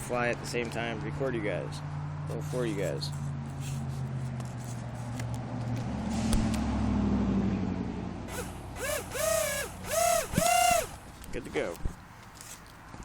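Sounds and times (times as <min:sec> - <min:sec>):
small electric motors whining: 0:08.3 - 0:11.3.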